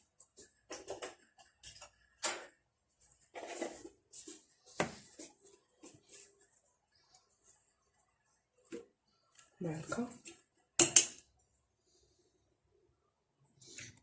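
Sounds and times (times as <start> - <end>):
kitchen utensils clicking and tapping: 0.6 - 2.5, 9.9 - 11.2.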